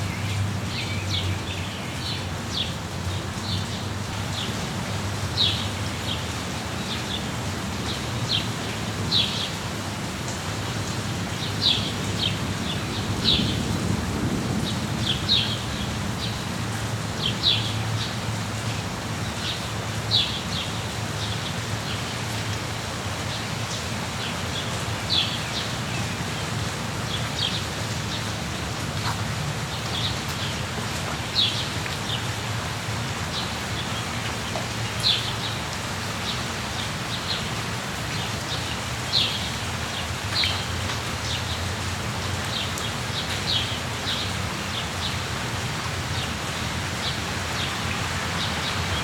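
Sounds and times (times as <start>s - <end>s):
rain hiss: 0.0s - 49.0s.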